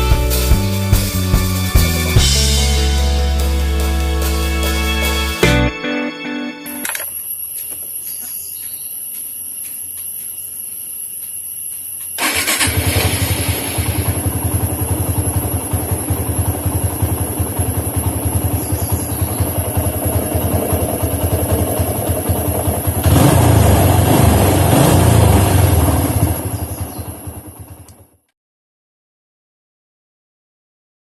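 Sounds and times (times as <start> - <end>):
motorcycle engine starting and idling: 0.0 - 3.6, 12.2 - 28.3.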